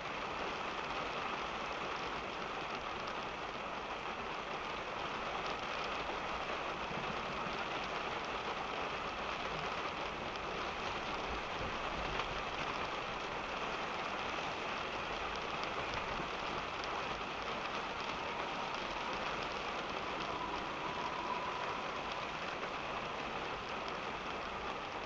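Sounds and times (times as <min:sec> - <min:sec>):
rain pattering on a car: 0:00.0 - 0:25.0
low rumble: 0:16.6 - 0:24.7.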